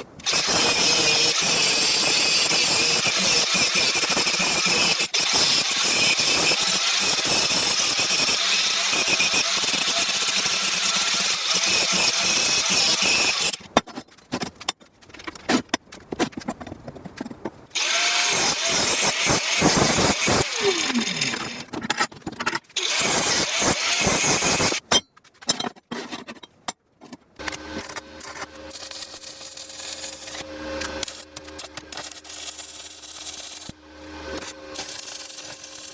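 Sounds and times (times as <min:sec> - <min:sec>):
power tool running: 0:00.2 - 0:13.6, 0:17.8 - 0:21.7, 0:22.8 - 0:24.8
knocks and clatter of handling: 0:13.6 - 0:17.7, 0:21.6 - 0:22.8, 0:24.8 - 0:28.4.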